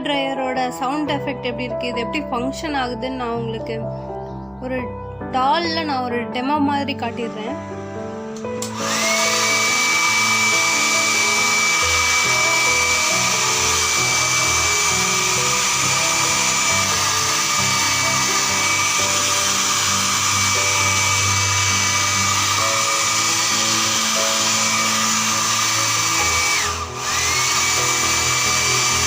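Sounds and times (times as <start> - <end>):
hair dryer running: 7.0 - 29.0.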